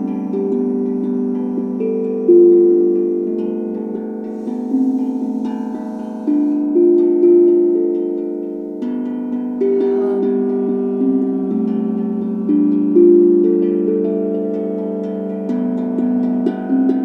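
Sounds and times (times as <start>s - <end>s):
singing bowls ringing: 0.0s - 17.0s.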